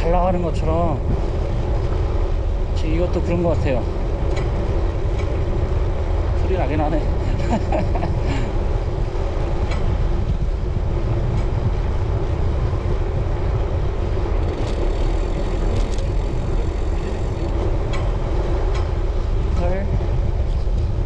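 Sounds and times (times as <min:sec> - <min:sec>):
bike tyre rumble: 0:00.0 - 0:21.0
wind rush over microphone: 0:00.0 - 0:21.0
faint ticks from bike: 0:14.4 - 0:18.1.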